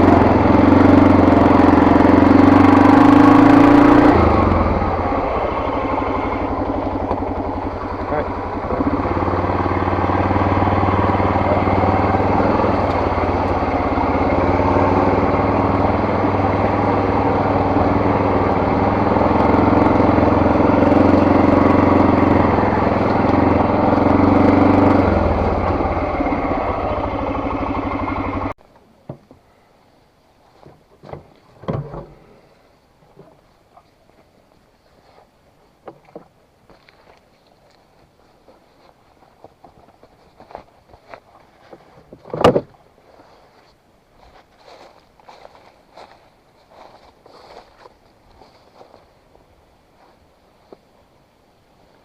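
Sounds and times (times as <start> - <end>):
vehicle engine running under load: 0.0 - 28.6.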